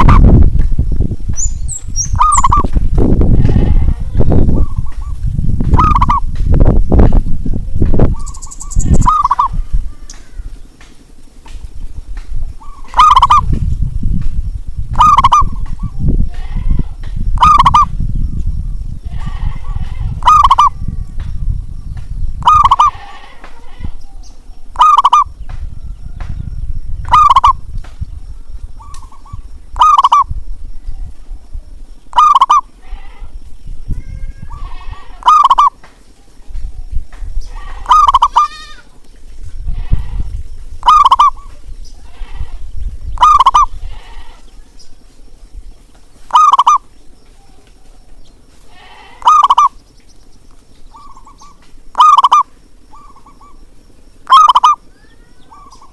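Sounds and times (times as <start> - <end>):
dove cooing: 2.0 - 2.7, 4.1 - 6.3, 8.0 - 10.4, 12.6 - 13.6, 14.9 - 16.1, 17.4 - 18.0, 19.4 - 20.9, 22.4 - 23.9, 24.7 - 25.3, 27.1 - 27.6, 28.4 - 30.3, 32.1 - 32.7, 34.5 - 36.4, 37.6 - 38.5, 40.8 - 41.5, 43.2 - 43.8, 46.3 - 48.2, 48.8 - 49.8, 50.9 - 53.6, 54.2 - 55.9.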